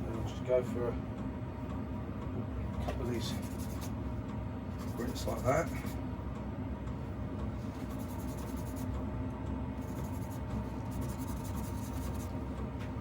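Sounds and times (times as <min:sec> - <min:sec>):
wet sandpaper scratching: 0:11.0 - 0:12.3.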